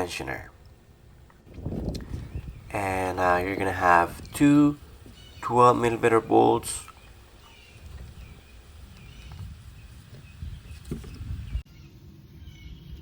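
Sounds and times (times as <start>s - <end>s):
low rumbling background: 0.0s - 13.0s
faint bird chirps: 4.1s - 13.0s.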